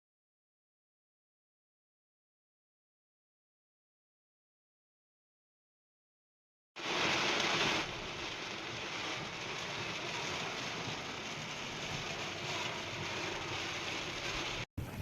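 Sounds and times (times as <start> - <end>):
steady rushing noise: 6.8 - 15.0.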